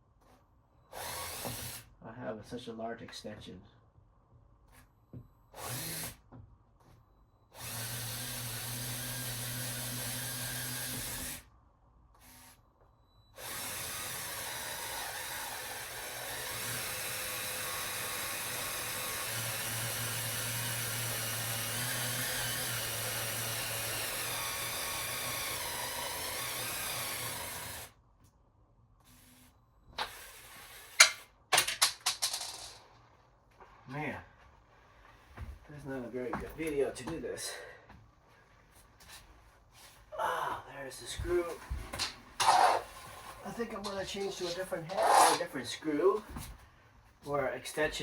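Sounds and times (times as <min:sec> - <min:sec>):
power drill driving screw: 0:00.9 - 0:01.9, 0:05.5 - 0:06.2, 0:07.5 - 0:11.5, 0:12.2 - 0:12.6, 0:13.4 - 0:28.0, 0:29.0 - 0:32.8, 0:41.3 - 0:45.7.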